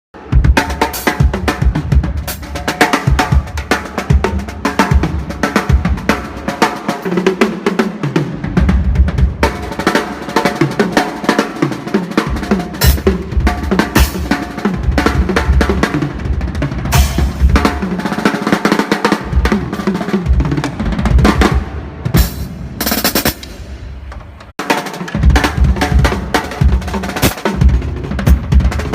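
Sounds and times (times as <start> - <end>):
snare drum hits and rolls: 0.3 - 28.9
bass drum beats: 12.2 - 18.0, 25.2 - 28.9.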